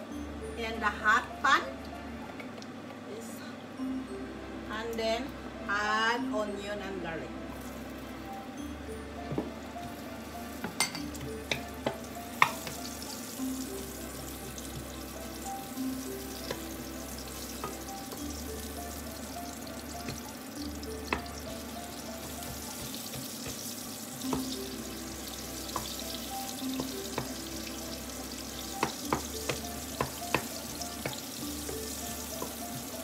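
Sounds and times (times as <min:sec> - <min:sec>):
garlic and onion sizzling in oil: 0:07.5 - 0:33.0
wooden spatula stirring: 0:21.1 - 0:24.6.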